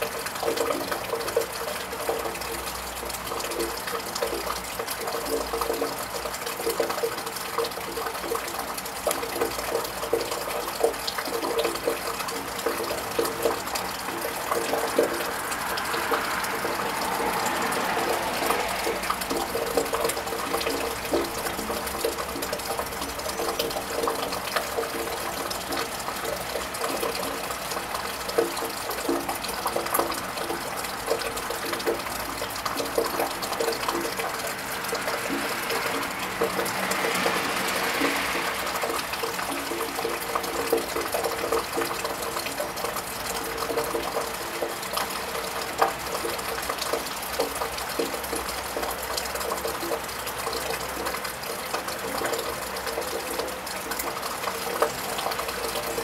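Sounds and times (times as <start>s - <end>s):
steady rain: 0.0s - 56.0s
water drips tapping: 0.0s - 56.0s
car tyres hissing on wet road: 13.6s - 23.3s, 30.1s - 41.1s.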